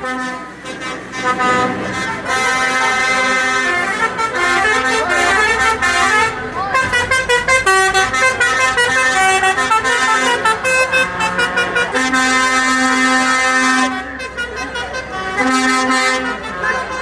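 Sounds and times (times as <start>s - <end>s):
vehicle horns sounding: 0.0s - 17.0s.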